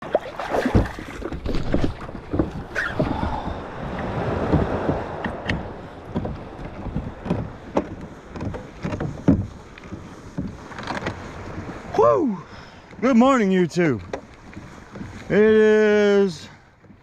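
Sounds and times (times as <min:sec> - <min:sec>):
water sloshing around kayak: 0:00.0 - 0:17.0
wind on microphone: 0:00.6 - 0:09.6
knocks against kayak hull: 0:00.6 - 0:11.8, 0:14.0 - 0:15.3.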